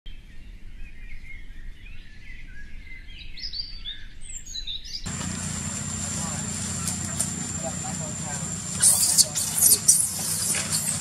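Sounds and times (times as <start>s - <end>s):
birds chirping: 3.2s - 11.0s.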